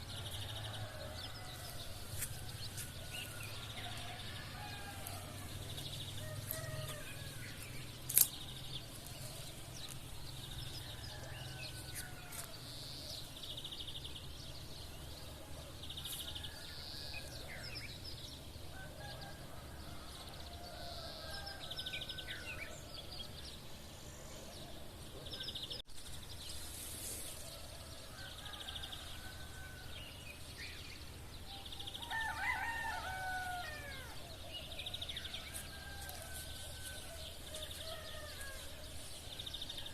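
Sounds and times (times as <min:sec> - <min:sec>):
roosters crowing: 0:00.0 - 0:08.3, 0:09.0 - 0:12.8, 0:18.6 - 0:22.8, 0:27.3 - 0:30.5, 0:31.5 - 0:39.9
sparrows chirping and trilling: 0:00.0 - 0:39.9.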